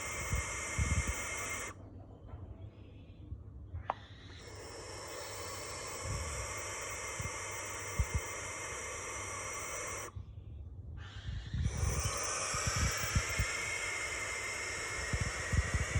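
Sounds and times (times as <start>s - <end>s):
barn owl hissing screams: 0.0s - 1.8s, 4.1s - 10.1s, 11.0s - 15.9s.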